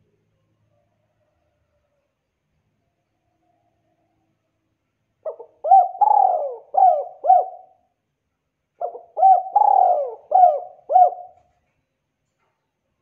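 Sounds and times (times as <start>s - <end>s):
dove cooing: 5.2s - 7.8s, 8.8s - 11.5s.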